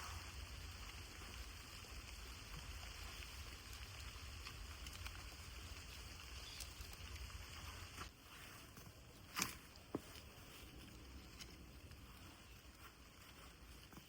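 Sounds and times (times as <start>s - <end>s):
steady rain falling: 0.0s - 8.1s.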